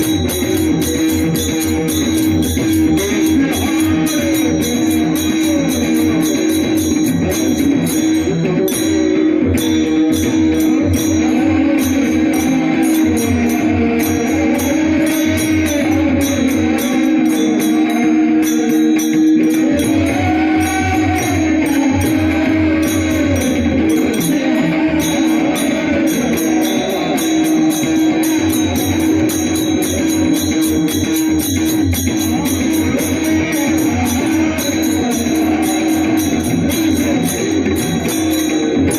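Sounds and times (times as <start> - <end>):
hand drum beating: 0.0 - 38.9
small cymbals jingling: 0.0 - 38.9
devotional singing: 10.7 - 29.9, 32.8 - 38.2.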